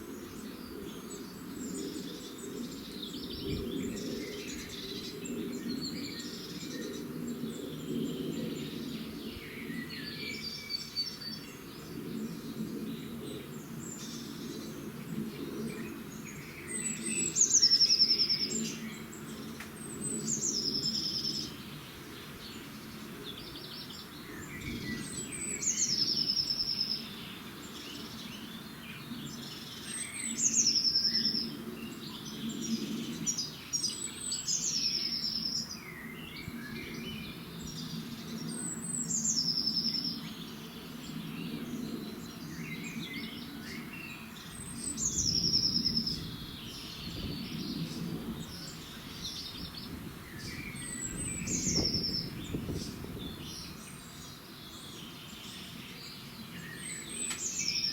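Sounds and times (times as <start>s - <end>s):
birds chirping: 13.7s - 57.9s.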